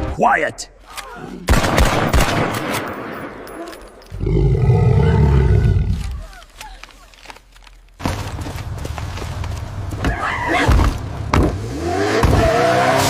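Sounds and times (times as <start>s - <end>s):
big cat roaring: 4.1s - 6.2s.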